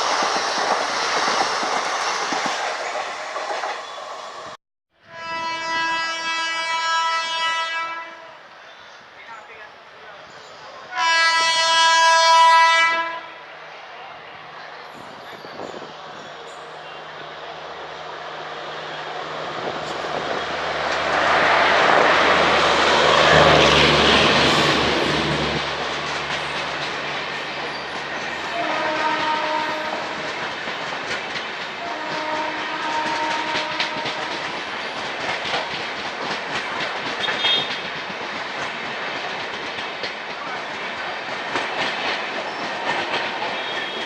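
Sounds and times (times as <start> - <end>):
train passing: 0.0 - 44.0
locomotive horn blasts: 5.0 - 8.4, 10.9 - 13.3, 28.5 - 30.0, 31.8 - 34.4
wheels clacking on rail joints: 19.5 - 44.0.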